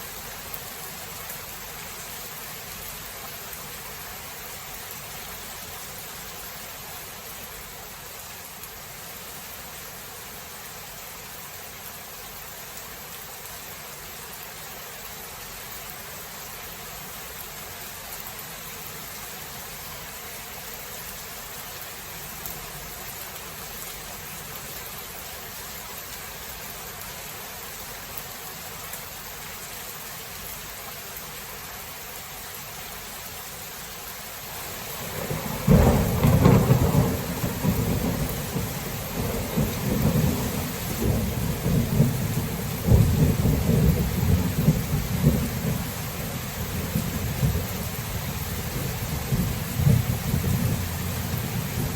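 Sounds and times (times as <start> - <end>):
steady rain falling: 0.0 - 51.9
thunder rumble: 34.6 - 51.9.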